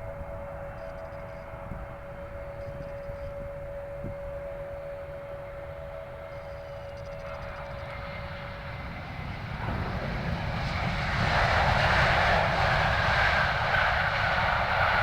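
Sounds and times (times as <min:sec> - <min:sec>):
high steady whine: 0:00.0 - 0:12.8
jet engines roaring: 0:05.6 - 0:15.0.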